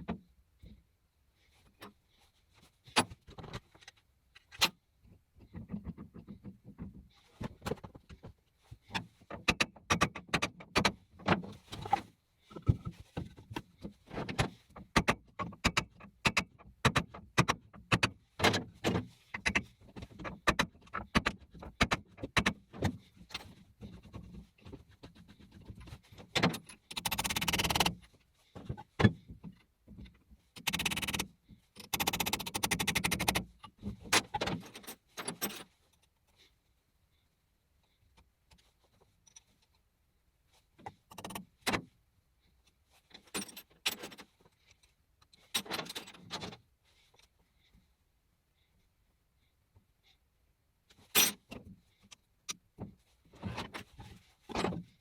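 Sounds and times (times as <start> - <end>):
metal parts clinking and rattling: 25.6 - 28.0, 43.2 - 44.3, 51.0 - 51.6.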